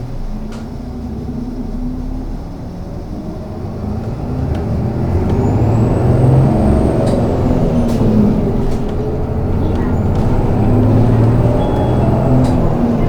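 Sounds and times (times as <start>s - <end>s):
bus engine and drivetrain: 0.0s - 13.0s.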